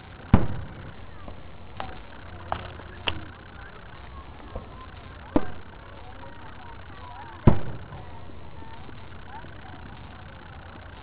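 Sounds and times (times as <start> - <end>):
firework bangs: 0.0 - 10.9
low background rumble: 0.0 - 11.0.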